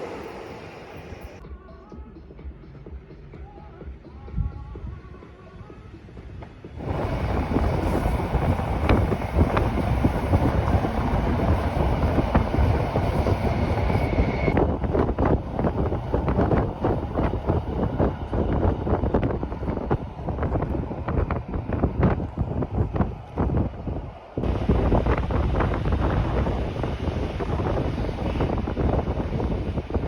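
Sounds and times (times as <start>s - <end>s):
train rail rumble: 0.0s - 1.4s, 4.8s - 30.0s
wind on microphone: 6.7s - 30.0s.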